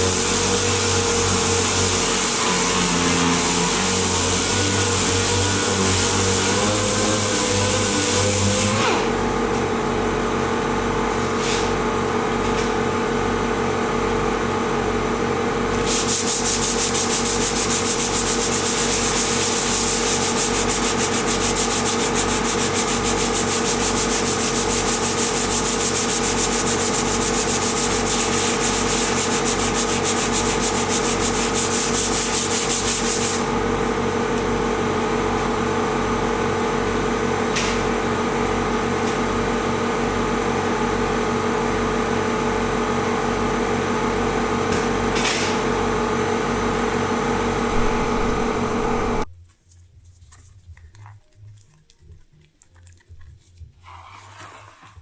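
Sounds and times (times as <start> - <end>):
power sander on bodywork: 0.0 - 9.2, 15.8 - 35.6.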